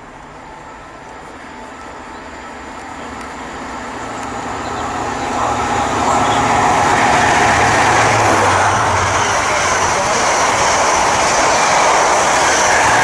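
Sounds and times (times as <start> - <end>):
diesel train engine drone: 0.0 - 13.0
rail noise: 0.0 - 13.0.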